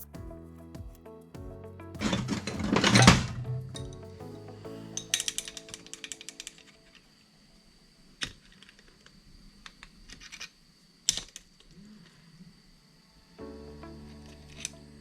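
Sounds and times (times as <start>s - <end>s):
background music: 0.0s - 7.2s, 13.3s - 15.0s.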